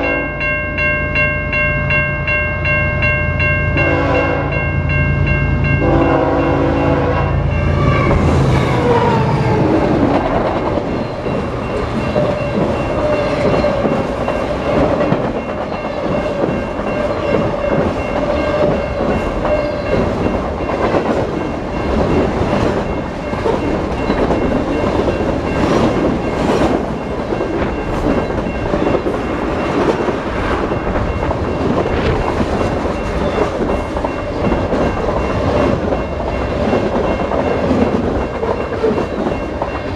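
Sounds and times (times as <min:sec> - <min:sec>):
train horn: 0:00.0 - 0:00.3, 0:03.8 - 0:04.7, 0:05.8 - 0:09.6
locomotive engine passing: 0:03.4 - 0:38.9
train cars clattering on rails: 0:08.0 - 0:39.9.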